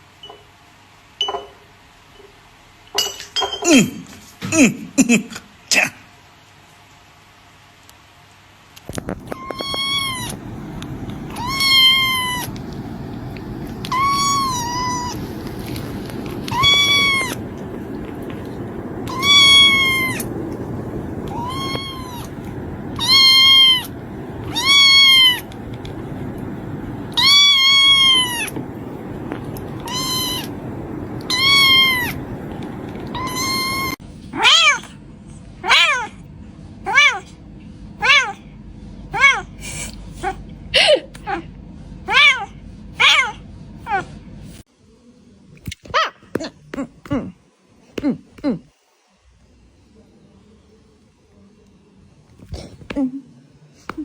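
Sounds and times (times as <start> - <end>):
low background noise: 0.0 - 54.0
kitten meowing: 9.2 - 10.4, 11.3 - 12.7, 13.6 - 20.4, 21.2 - 26.0, 27.1 - 28.6, 29.3 - 30.6, 31.2 - 34.9.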